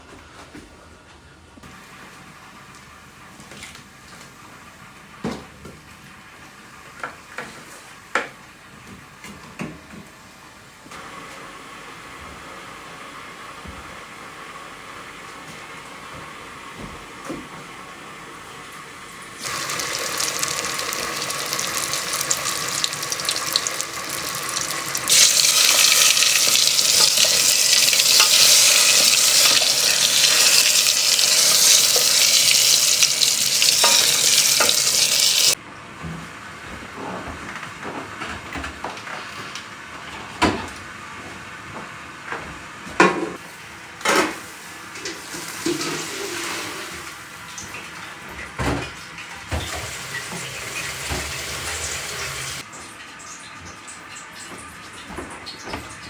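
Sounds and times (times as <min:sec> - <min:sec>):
water running into sink: 0:19.4 - 0:35.6, 0:49.5 - 0:52.6.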